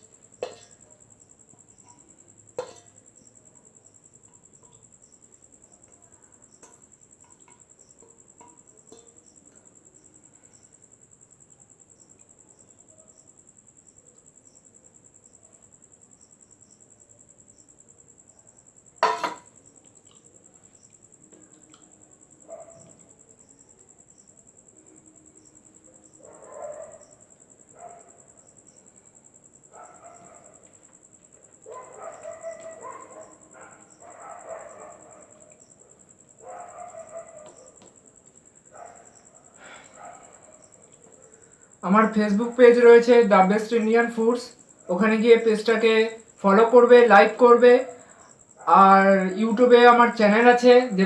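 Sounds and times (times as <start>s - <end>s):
cricket trill: 0.0s - 51.0s
distant dogs barking: 22.4s - 23.3s, 25.8s - 28.7s, 29.6s - 41.8s.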